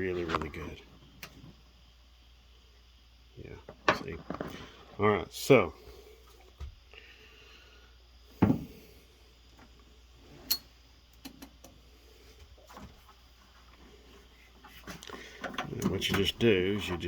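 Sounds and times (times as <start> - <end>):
thump: 8.4 - 8.8.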